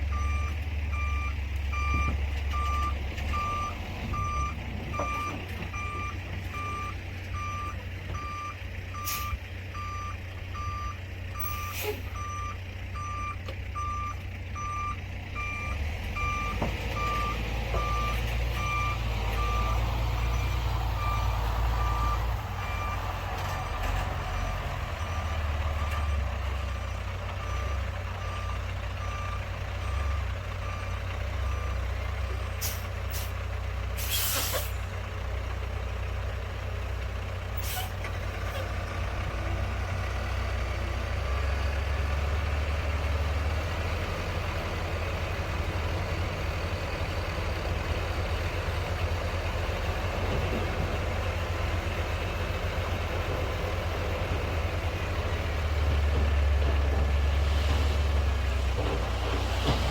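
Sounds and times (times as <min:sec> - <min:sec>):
short hisses: 0:34.0 - 0:34.8
skid steer engine running: 0:34.7 - 0:59.9.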